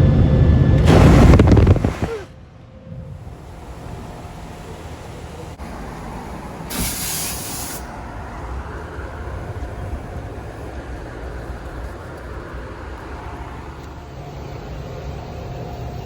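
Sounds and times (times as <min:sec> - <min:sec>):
car wash low rumble: 0:00.0 - 0:16.0
loud spray hiss: 0:00.8 - 0:02.3, 0:03.2 - 0:08.1
water spray: 0:00.8 - 0:02.3, 0:06.7 - 0:07.9.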